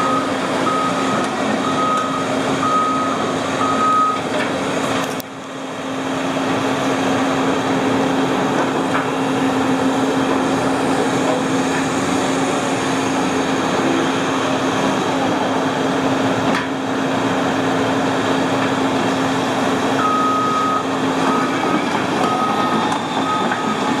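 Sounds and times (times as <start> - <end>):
warning alarm beeps: 0.0 - 4.2, 20.0 - 24.0
excavator diesel engine running: 0.0 - 24.0.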